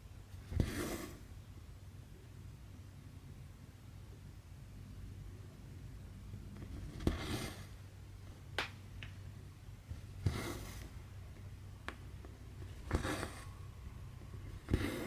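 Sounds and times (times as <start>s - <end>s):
thread swishing through fabric: 14.5s - 15.0s.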